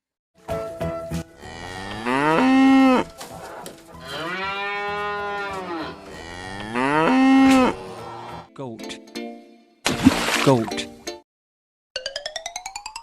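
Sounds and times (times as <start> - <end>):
cow mooing: 1.4 - 3.2, 3.9 - 8.5.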